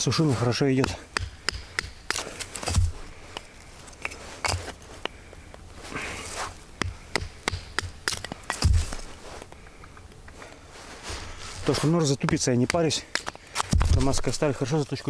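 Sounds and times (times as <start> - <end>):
wood splitting rasp: 0.0 - 5.2, 5.8 - 9.5, 11.1 - 15.0
baton knocking on knife: 1.2 - 3.0.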